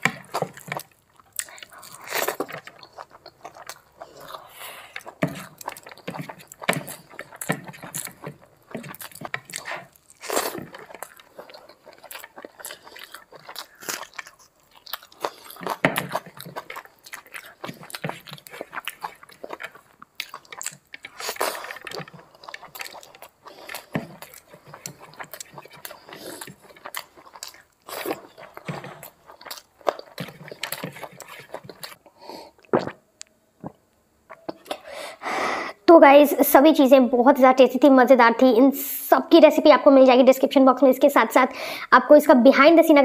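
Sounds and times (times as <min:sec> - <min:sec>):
wet chewing mouth clicks: 0:00.0 - 0:32.0.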